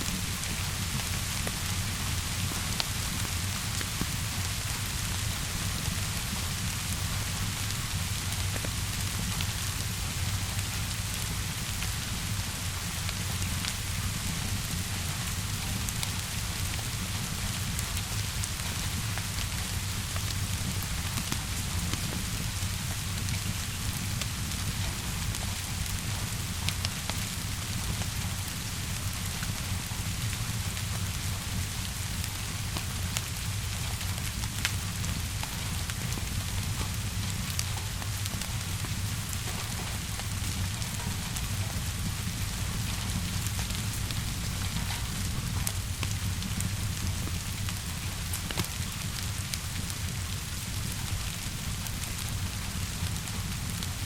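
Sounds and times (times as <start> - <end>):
steady rainfall: 0.0 - 54.0
wood fire crackling: 0.0 - 54.0.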